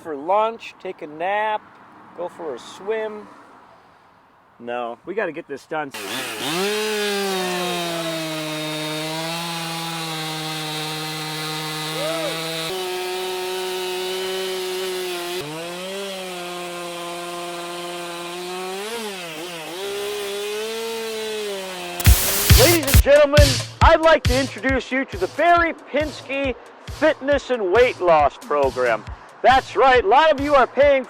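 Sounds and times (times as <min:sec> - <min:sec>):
chainsaw carving wood: 0:06.0 - 0:23.0.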